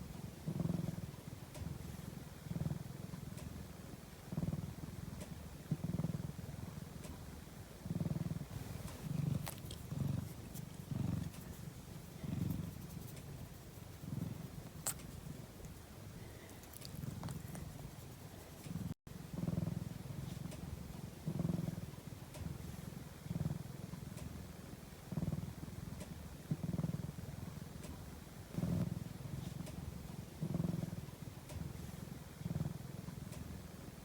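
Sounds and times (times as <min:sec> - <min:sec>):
cat purring: 0:00.0 - 0:34.0
faint clicks: 0:08.6 - 0:15.8, 0:16.4 - 0:19.0.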